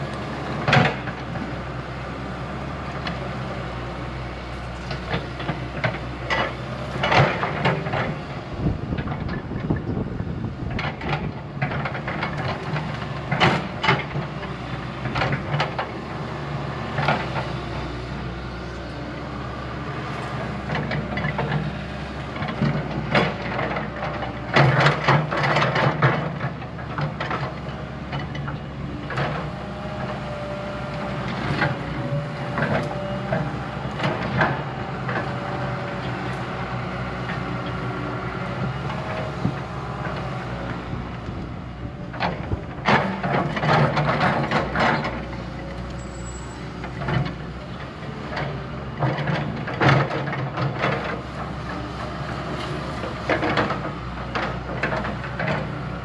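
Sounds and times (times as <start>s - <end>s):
diesel earthmoving machine running: 0.0s - 56.0s.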